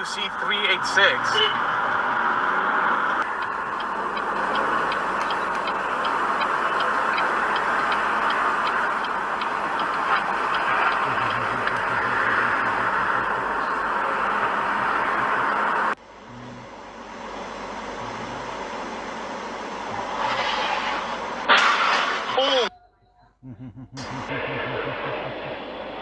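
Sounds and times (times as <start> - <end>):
car road and engine noise: 0.0 - 22.7, 24.0 - 26.0
light quick ticking: 3.2 - 16.0.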